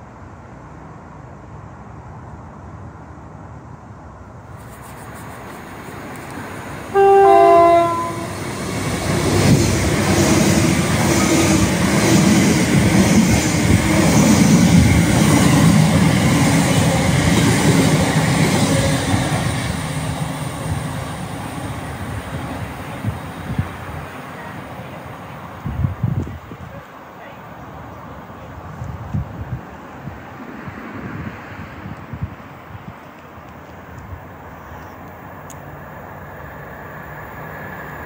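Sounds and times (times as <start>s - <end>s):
two-tone train horn: 6.9s - 8.5s
train wheels clattering on rails: 8.2s - 23.7s.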